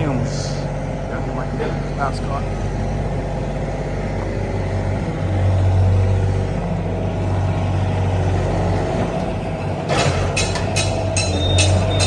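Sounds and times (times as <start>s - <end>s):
engine humming: 0.0s - 12.0s
sharp clattering strikes: 9.9s - 12.0s.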